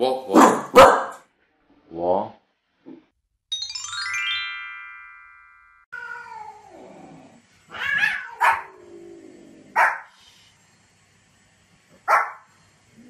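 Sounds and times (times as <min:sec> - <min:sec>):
small dog barking sharply: 0:00.4 - 0:01.2, 0:09.8 - 0:10.1, 0:12.1 - 0:12.4
falling chime jingle: 0:03.5 - 0:05.9
dog crying: 0:07.7 - 0:08.8.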